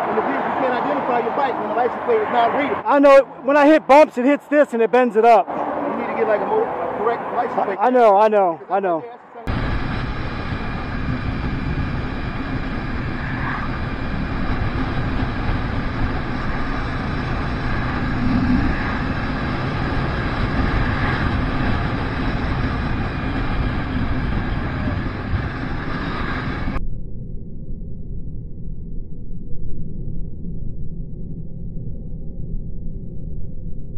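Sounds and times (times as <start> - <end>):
motorcycle engine: 9.4 - 26.8
wind noise on microphone: 9.5 - 26.8.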